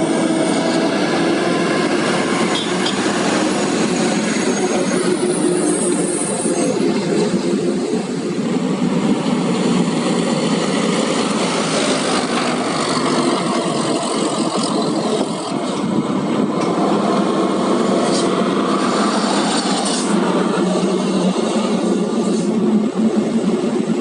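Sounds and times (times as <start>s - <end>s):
truck diesel engine running: 0.0s - 24.0s.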